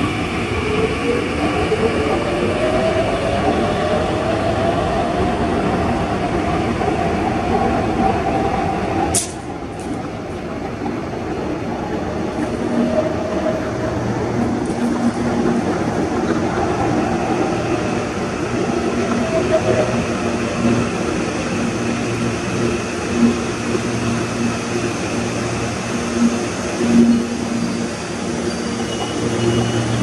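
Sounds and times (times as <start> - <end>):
sharp click: 9.2 - 9.4.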